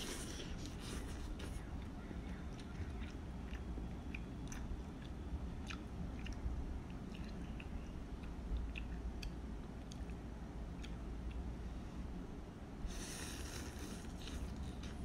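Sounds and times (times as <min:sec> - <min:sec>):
chewing noodles: 0:00.0 - 0:10.2, 0:12.9 - 0:15.0
wet mouth clicks: 0:02.5 - 0:10.2.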